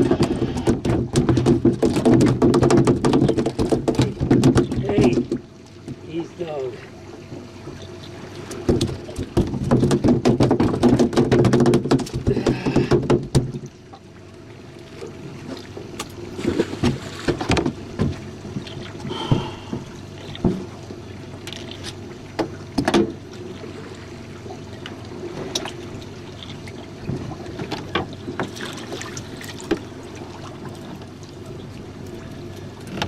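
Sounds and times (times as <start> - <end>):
knocks against boat hull: 0.0 - 5.4, 8.6 - 13.6, 19.1 - 20.7, 22.4 - 23.2
boat motor running: 0.0 - 33.0.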